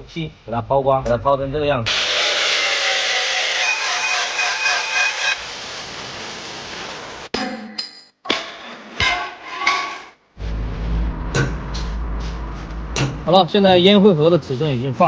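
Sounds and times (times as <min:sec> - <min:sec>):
angle grinder grinding steel: 0:01.9 - 0:05.4.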